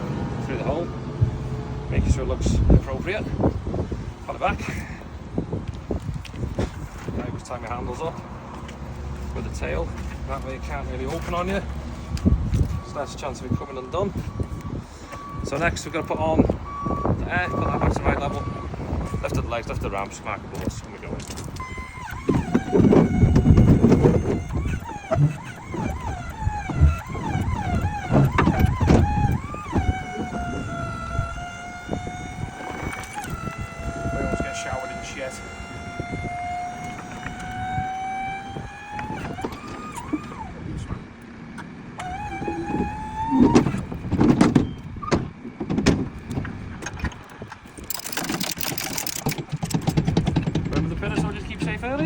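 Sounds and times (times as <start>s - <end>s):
hydraulics whining: 0.0s - 52.0s
heavy metal clunks and rattles: 20.6s - 34.4s, 42.0s - 52.0s.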